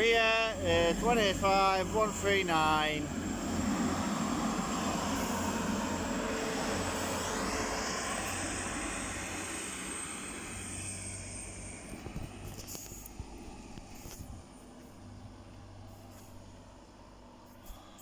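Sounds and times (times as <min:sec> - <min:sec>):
diesel train pulling away: 0:00.0 - 0:12.5.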